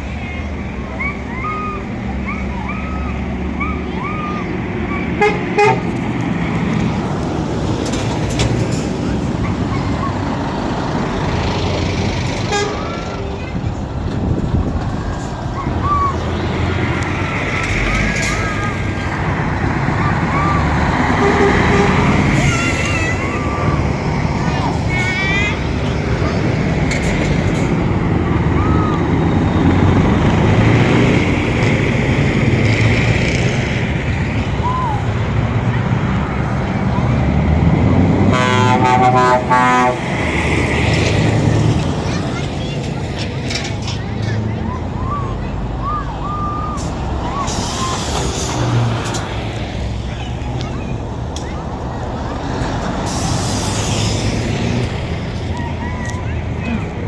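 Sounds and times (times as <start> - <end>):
truck engine and road noise: 0.0 - 57.0
truck horn toots: 5.2 - 6.0, 12.4 - 13.2, 17.0 - 24.3, 38.3 - 40.5.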